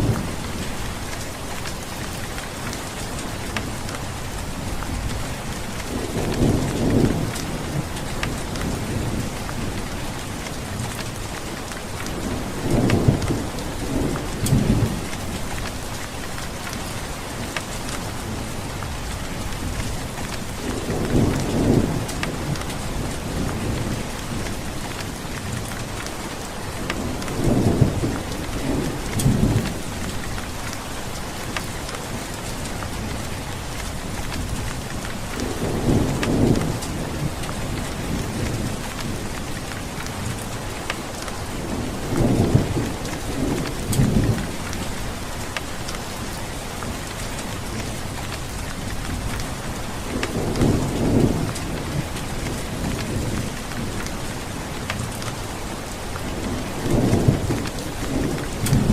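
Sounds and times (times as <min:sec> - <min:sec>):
heavy rain hissing: 0:00.0 - 0:58.9
thunder rumbling: 0:46.8 - 0:58.9.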